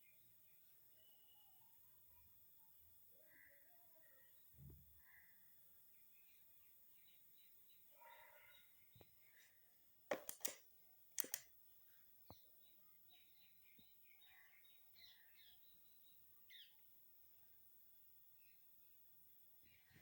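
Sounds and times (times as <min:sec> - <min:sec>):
faint high chirps: 0:00.0 - 0:09.4
sharp clicks: 0:10.1 - 0:10.6, 0:11.2 - 0:11.5.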